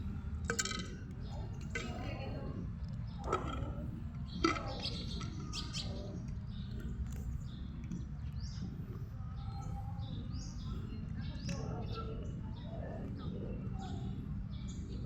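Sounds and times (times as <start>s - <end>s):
low background rumble: 0.0s - 11.4s
small birds chirping: 0.0s - 15.0s.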